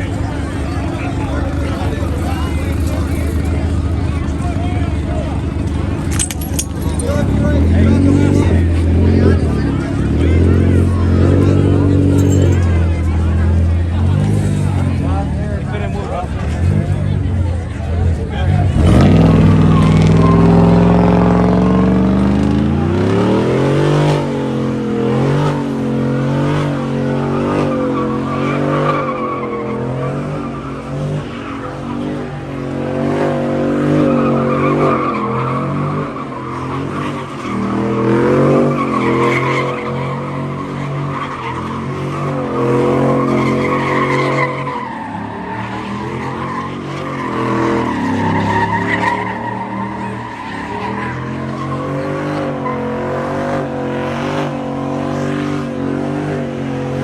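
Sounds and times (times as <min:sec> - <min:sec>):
car engine revving high: 0:00.0 - 0:57.0
tyres squealing: 0:34.0 - 0:53.0.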